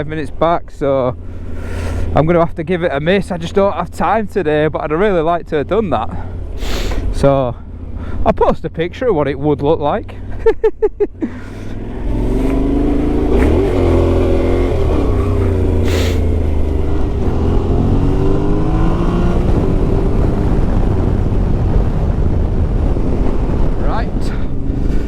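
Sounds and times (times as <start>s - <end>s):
road noise: 0.0s - 25.0s
motorcycle engine revving: 11.3s - 25.0s.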